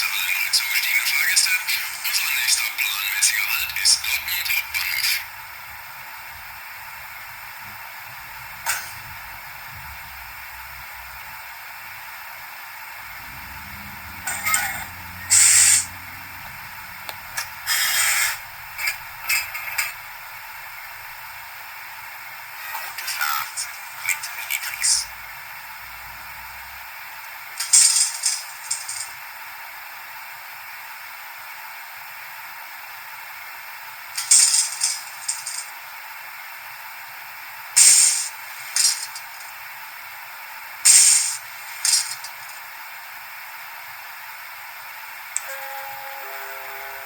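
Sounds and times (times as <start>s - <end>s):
model locomotive steady hiss: 14.9s - 16.2s, 16.8s - 19.4s, 23.1s - 45.2s
sharp bursts of hissing: 15.3s - 15.9s, 17.7s - 18.4s, 37.8s - 39.4s, 40.9s - 42.4s.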